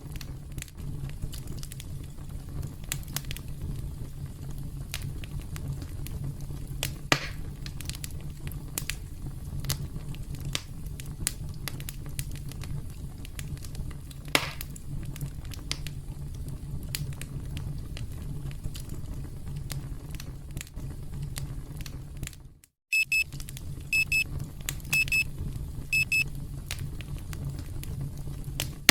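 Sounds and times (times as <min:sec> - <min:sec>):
campfire crackling: 0:00.0 - 0:22.4, 0:23.1 - 0:28.9
digital timer alarm beeping: 0:22.9 - 0:23.2, 0:23.9 - 0:24.2, 0:24.9 - 0:25.3, 0:26.0 - 0:26.2.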